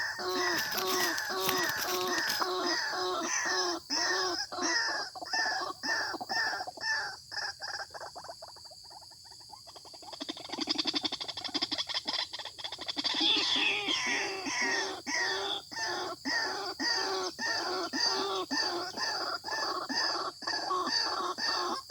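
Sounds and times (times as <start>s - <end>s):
fast stuttering bird chatter: 0.0s - 3.4s.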